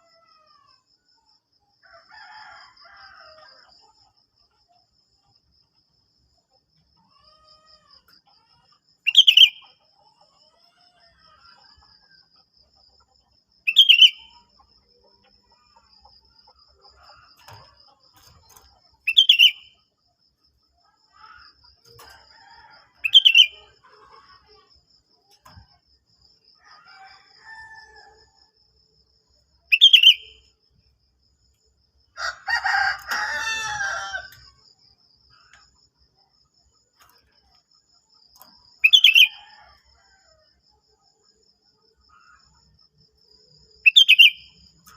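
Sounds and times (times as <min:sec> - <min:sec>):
rooster crowing: 0:01.8 - 0:03.6, 0:21.2 - 0:23.8, 0:26.6 - 0:28.4, 0:32.2 - 0:34.5.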